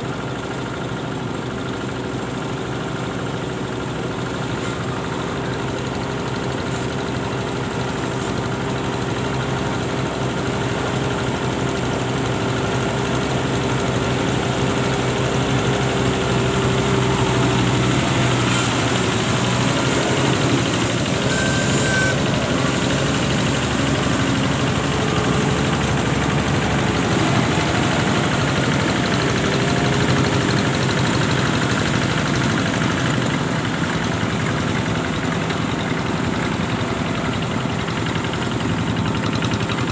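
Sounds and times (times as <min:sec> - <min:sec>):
engine running with pitched hum: 0:00.0 - 0:39.9
brief high note: 0:21.2 - 0:22.5.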